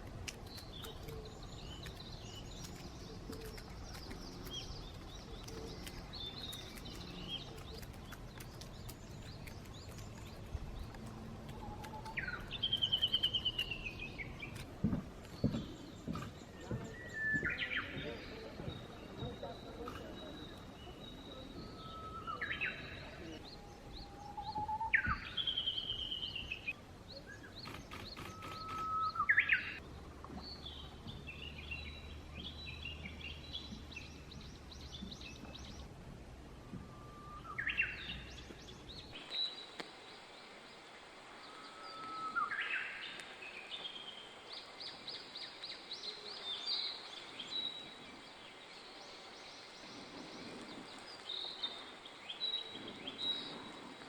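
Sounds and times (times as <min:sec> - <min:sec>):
songbirds calling and singing: 0:00.0 - 0:54.0.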